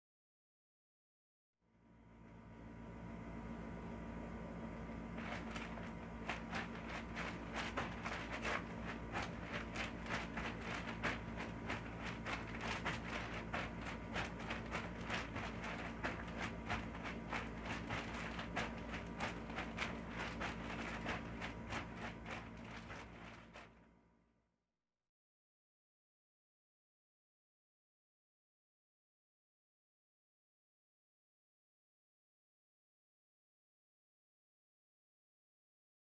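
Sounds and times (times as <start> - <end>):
low steady hum: 1.8 - 23.9.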